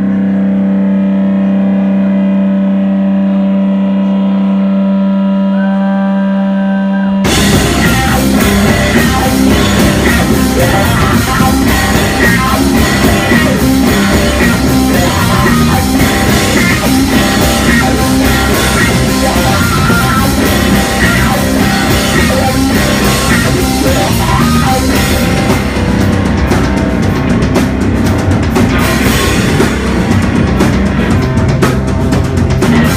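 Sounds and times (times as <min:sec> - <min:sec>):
rock band playing live: 0:07.2 - 0:32.9.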